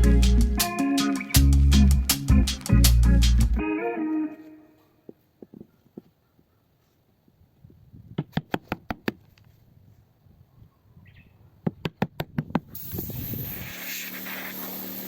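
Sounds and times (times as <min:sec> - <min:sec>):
steady hiss: 0:12.8 - 0:15.0.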